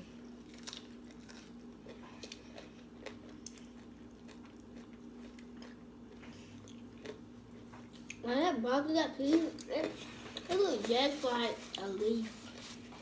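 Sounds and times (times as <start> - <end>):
steady low hum: 0.0 - 13.0
close-up chewing: 0.4 - 8.2.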